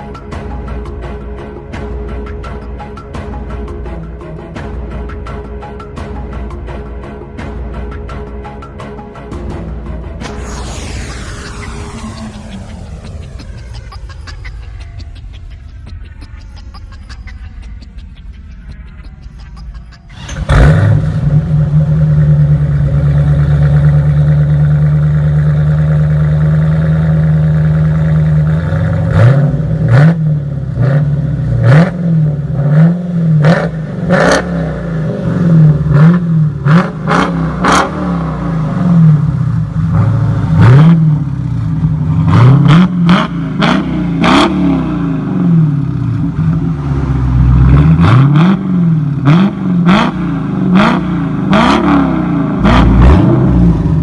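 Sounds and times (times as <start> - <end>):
engine revving in throttle blips: 20.1 - 54.0.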